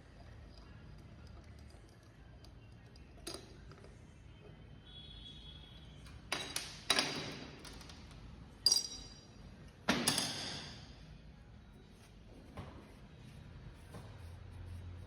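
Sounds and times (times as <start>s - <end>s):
metal parts clinking: 8.6s - 9.3s.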